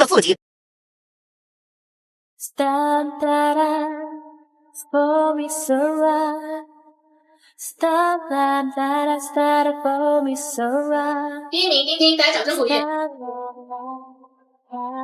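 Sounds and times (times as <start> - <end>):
woman singing slow melody: 2.4 - 4.2, 4.8 - 6.7, 7.6 - 11.5, 12.5 - 14.1, 14.7 - 15.0.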